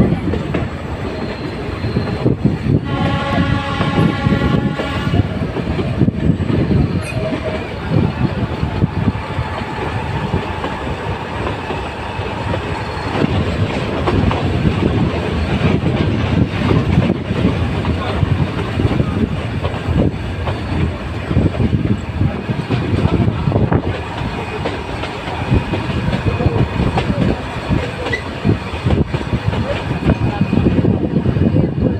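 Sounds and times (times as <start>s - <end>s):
train rumbling: 0.0s - 31.9s
train horn: 2.8s - 5.5s.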